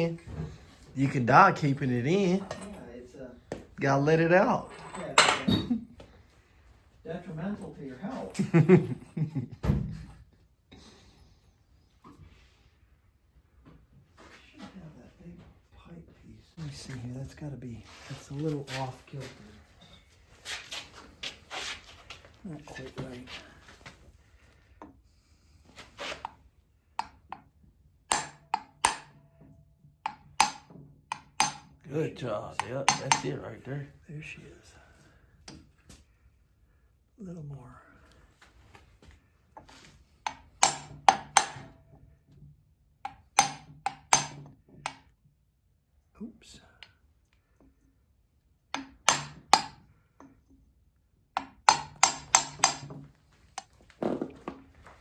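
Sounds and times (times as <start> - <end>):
hammer strikes ringing: 30.1 - 31.7, 32.6 - 33.4, 51.4 - 52.9.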